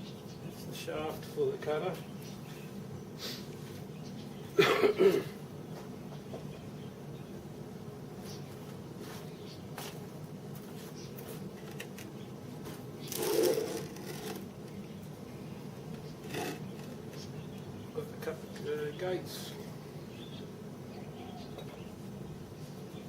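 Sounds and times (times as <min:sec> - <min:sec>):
steady low hum: 0:00.0 - 0:23.0
metal rubbing scrape: 0:13.1 - 0:14.5, 0:16.2 - 0:17.0.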